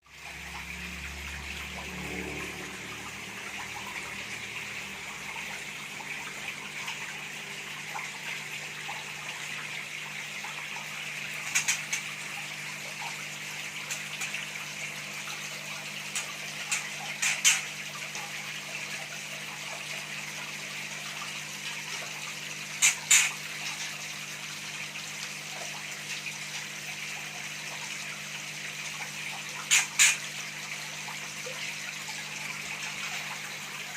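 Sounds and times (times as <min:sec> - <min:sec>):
trickling water: 0:00.0 - 0:33.9.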